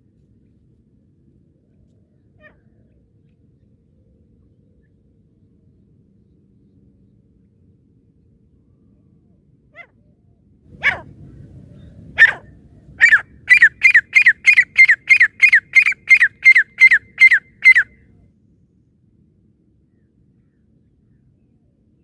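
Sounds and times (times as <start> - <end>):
francolin calling: 13.0 - 18.0.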